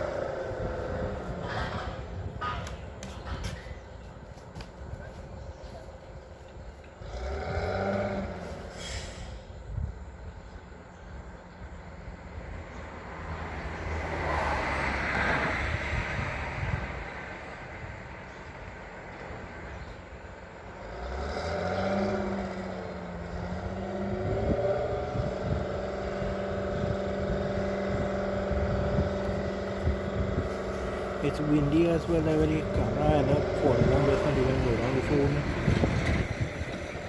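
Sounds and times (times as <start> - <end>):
truck engine running: 0.0 - 8.8, 22.6 - 37.0.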